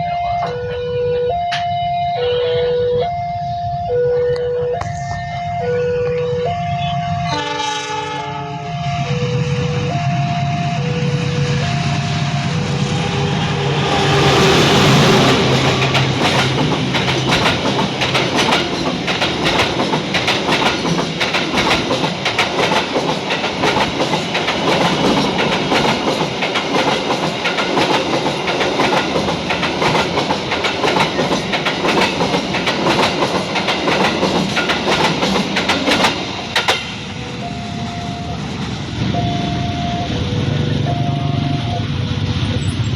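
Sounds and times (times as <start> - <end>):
two-tone crossing alarm: 0.0 - 14.3, 37.1 - 38.5, 39.1 - 42.9
locomotive rushing past: 8.6 - 42.9
wagon wheels clickety-clack: 15.7 - 36.9.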